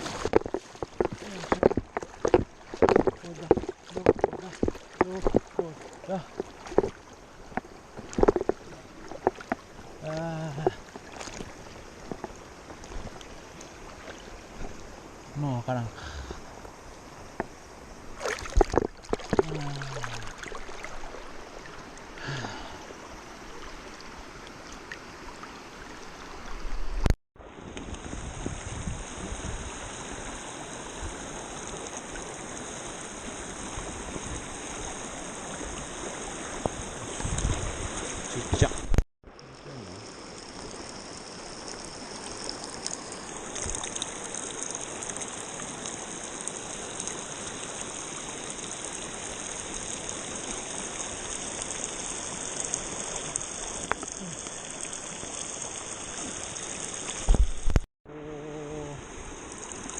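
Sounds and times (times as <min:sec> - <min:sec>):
river water rushing over rapids: 0:00.0 - 0:26.6.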